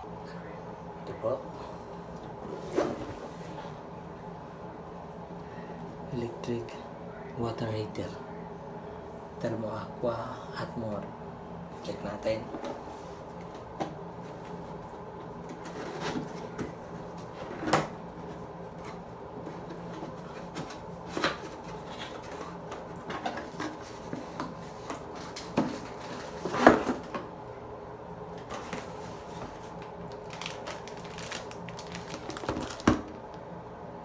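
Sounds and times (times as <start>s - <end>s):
packaging scrapes and rustles: 28.5s - 33.0s.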